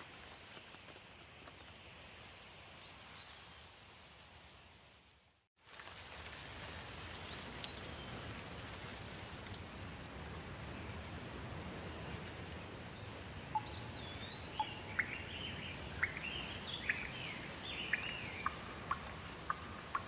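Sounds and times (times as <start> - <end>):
steady rain falling: 3.5 - 13.9, 14.6 - 20.0.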